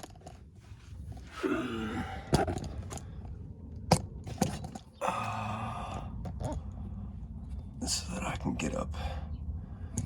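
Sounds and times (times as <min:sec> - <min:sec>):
rustling and scraping: 0:00.0 - 0:01.4.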